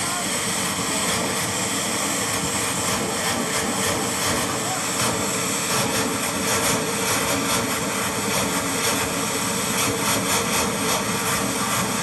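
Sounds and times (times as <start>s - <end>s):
turbine engine running: 0.0s - 12.0s.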